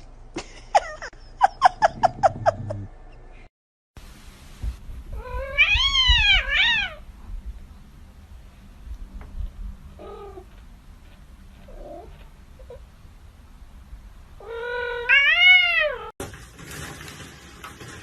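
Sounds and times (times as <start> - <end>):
cat meowing: 5.1 - 7.0, 14.4 - 16.1.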